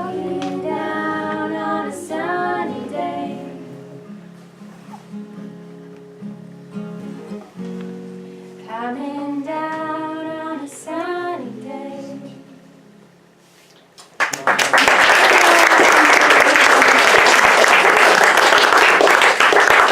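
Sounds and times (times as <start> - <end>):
person singing with acoustic guitar: 0.0 - 13.2
audience applause: 14.2 - 19.9.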